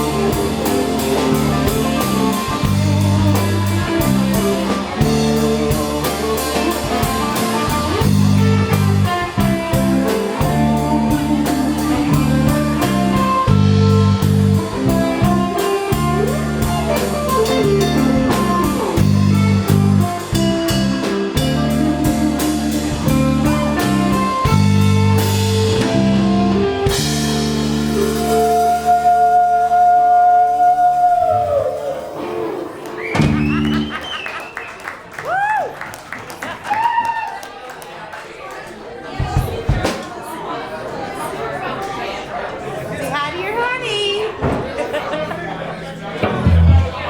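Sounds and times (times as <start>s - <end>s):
drum kit beat: 0.0s - 29.1s, 46.2s - 47.0s
bass line: 0.0s - 32.4s, 33.0s - 34.0s, 45.4s - 47.0s
guitar: 0.0s - 34.5s, 43.1s - 47.0s.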